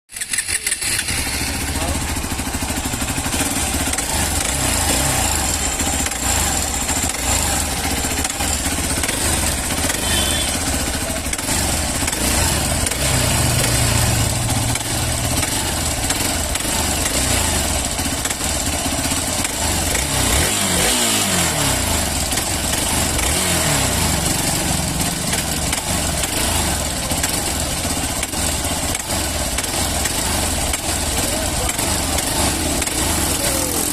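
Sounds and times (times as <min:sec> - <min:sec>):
motorcycle engine running: 0:00.1 - 0:33.9.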